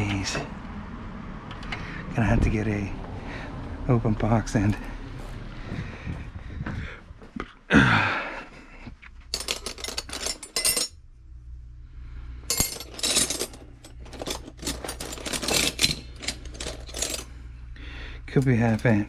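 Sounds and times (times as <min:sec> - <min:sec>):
metal wrenches clinking: 0:09.3 - 0:11.0, 0:12.5 - 0:17.3, 0:18.3 - 0:19.0.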